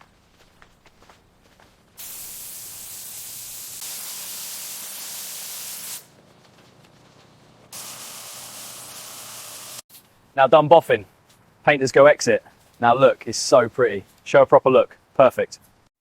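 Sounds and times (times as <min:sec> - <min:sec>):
paint spray gun hissing: 0:02.0 - 0:06.1, 0:07.7 - 0:09.9.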